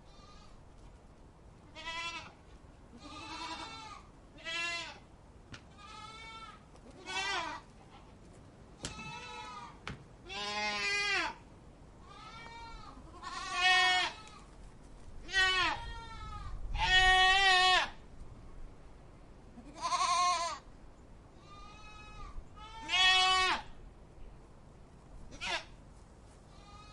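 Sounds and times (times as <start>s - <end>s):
goat bleating: 0.1s - 0.6s, 1.7s - 5.0s, 5.7s - 8.2s, 8.8s - 11.4s, 12.0s - 14.5s, 15.2s - 18.0s, 19.6s - 20.6s, 21.4s - 23.7s, 25.3s - 25.8s, 26.5s - 26.9s.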